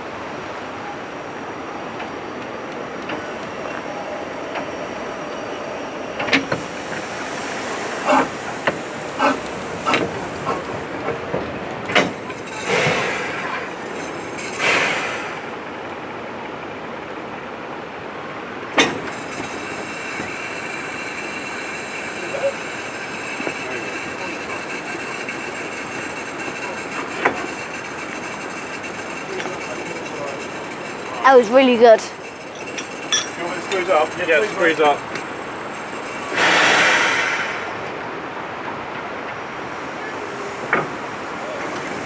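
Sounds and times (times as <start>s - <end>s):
train running noise: 0.0s - 42.0s
wheel knocks and clatters: 8.6s - 14.8s, 18.7s - 20.3s, 23.2s - 31.2s, 32.2s - 36.2s.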